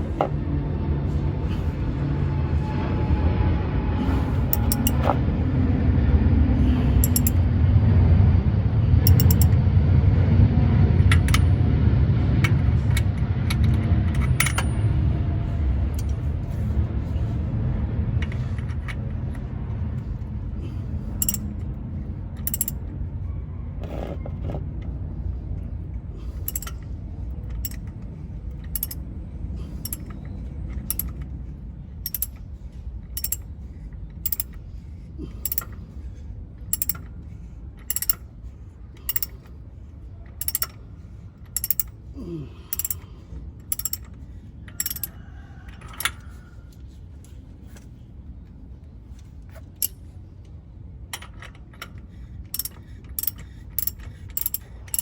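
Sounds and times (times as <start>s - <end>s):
low rumble: 0.0s - 35.2s
ratchet wrench clicking: 4.4s - 5.2s, 7.0s - 7.5s, 9.0s - 9.6s, 21.2s - 21.7s, 22.4s - 22.9s, 26.3s - 29.1s, 29.7s - 31.3s, 32.0s - 32.5s, 33.1s - 33.5s, 34.1s - 34.6s, 35.4s - 35.8s, 36.7s - 37.2s, 37.8s - 38.3s, 39.0s - 39.5s, 40.3s - 40.8s, 41.4s - 42.0s, 42.7s - 45.1s, 49.5s - 50.1s, 51.1s - 55.0s.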